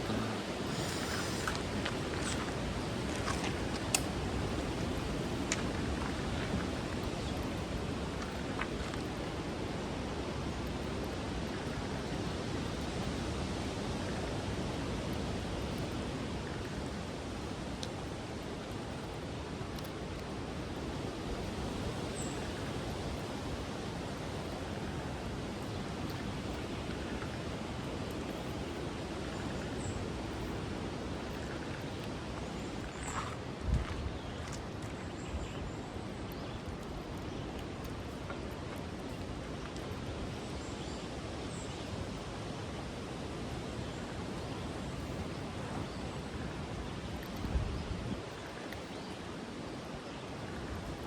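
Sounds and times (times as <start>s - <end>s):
wind on microphone: 20.7s - 36.0s, 44.2s - 48.7s
wind noise on microphone: 33.0s - 34.7s, 45.0s - 48.5s.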